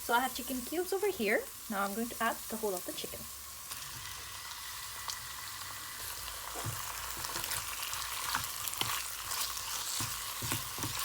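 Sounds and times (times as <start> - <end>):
chicken sizzling in hot oil: 0.0 - 11.0
spoon scraping a pan: 6.5 - 11.0.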